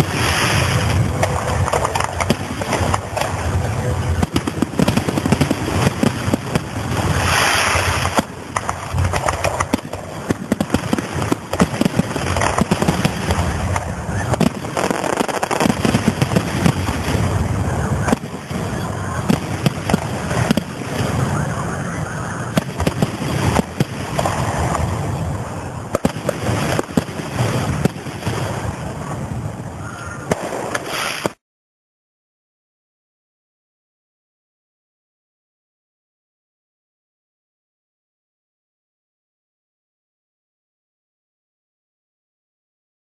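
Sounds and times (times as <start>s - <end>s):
fireworks bangs and crackles: 0.0s - 31.4s.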